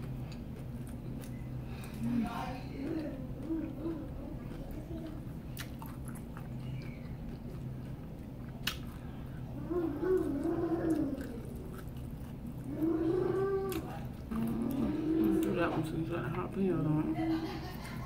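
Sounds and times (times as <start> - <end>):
person chewing food: 0.0 - 16.6.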